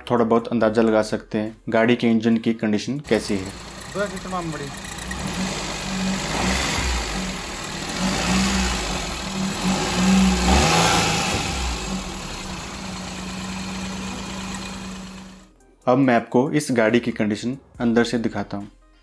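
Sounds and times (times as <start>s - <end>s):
car engine running: 3.1s - 15.5s.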